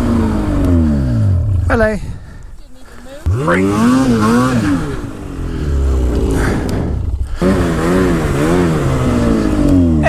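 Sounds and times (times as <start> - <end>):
snowmobile engine revving: 0.0 - 10.0.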